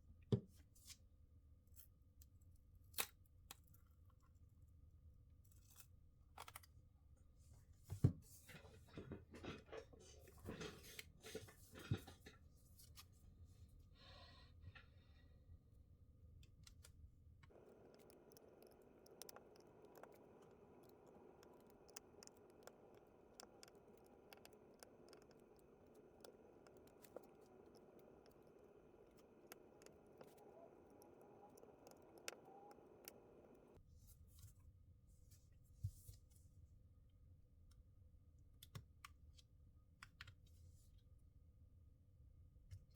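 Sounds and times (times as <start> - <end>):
light clicks and taps: 16.4 - 33.8.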